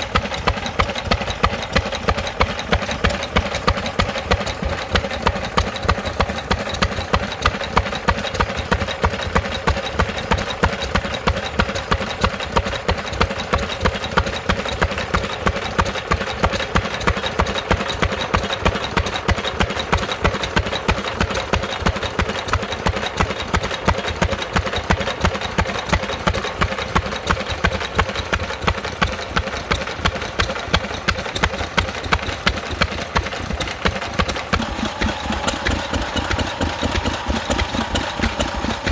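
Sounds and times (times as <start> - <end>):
stationary engine knocking: 0.0 - 38.9.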